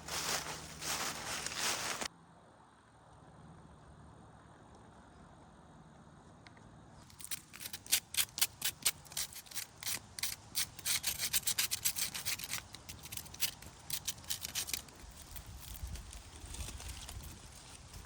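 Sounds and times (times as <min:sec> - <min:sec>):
rasping scraping strokes: 0:07.1 - 0:17.3.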